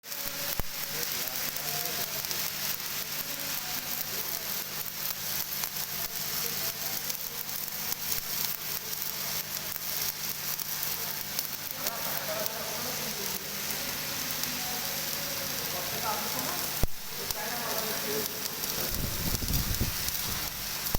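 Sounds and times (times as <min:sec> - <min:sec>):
welding arc crackling: 0:00.0 - 0:20.9.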